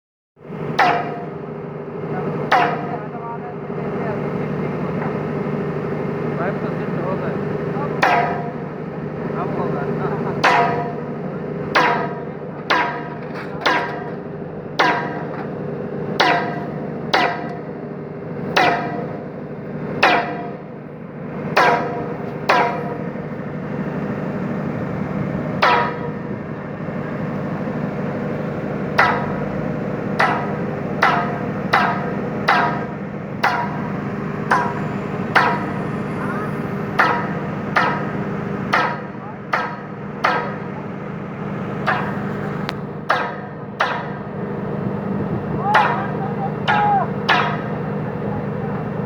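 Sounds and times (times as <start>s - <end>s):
mechanical hum: 0.4s - 49.0s
hammer striking steel pipe: 0.7s - 1.4s, 2.5s - 3.0s, 7.9s - 8.7s, 10.3s - 15.6s, 16.2s - 17.8s, 18.5s - 19.3s, 20.0s - 20.7s, 21.5s - 23.3s, 25.6s - 26.3s, 28.3s - 40.8s, 41.8s - 44.3s, 45.7s - 47.8s.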